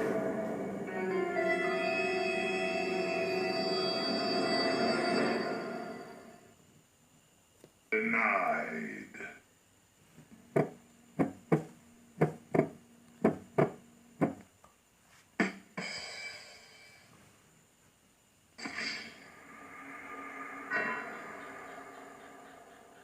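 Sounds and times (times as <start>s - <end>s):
ringing chime-like tones: 1.4s - 6.5s, 20.4s - 22.6s.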